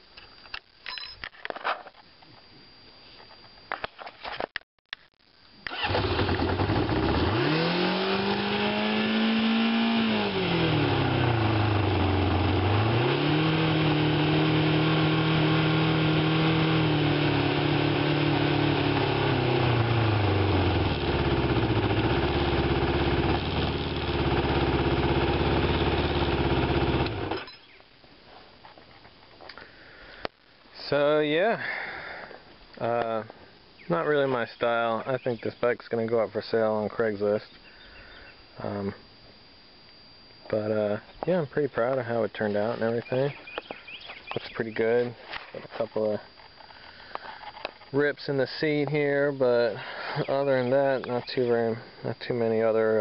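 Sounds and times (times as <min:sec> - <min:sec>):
motorcycle engine starting and revving: 0:05.7 - 0:27.6.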